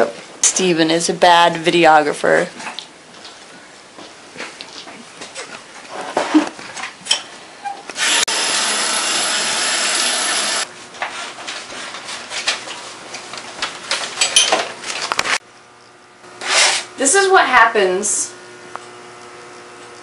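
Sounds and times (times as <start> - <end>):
kitchen clatter and knocks: 14.0 - 14.8.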